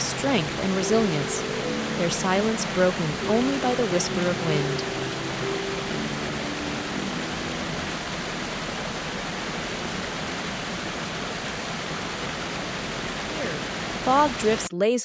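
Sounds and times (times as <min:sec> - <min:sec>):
steady rushing hiss: 0:00.0 - 0:14.7.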